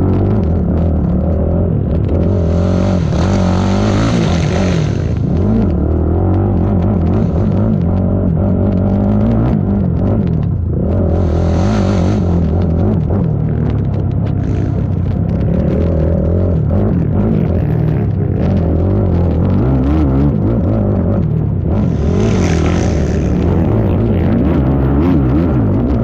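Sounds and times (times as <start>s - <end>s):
atv engine racing: 0.0s - 26.0s
rushing hiss: 11.2s - 12.4s.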